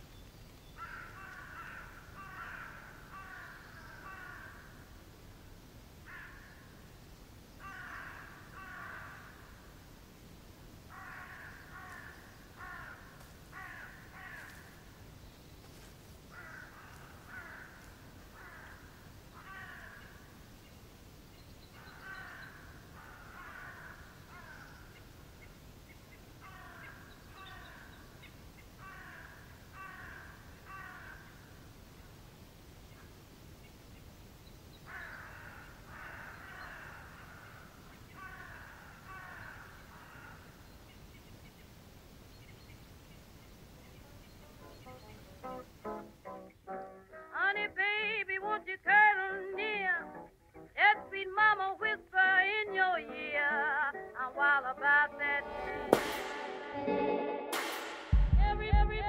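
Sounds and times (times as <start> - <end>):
birds calling: 0.0 - 4.7, 10.9 - 31.2, 33.0 - 47.3.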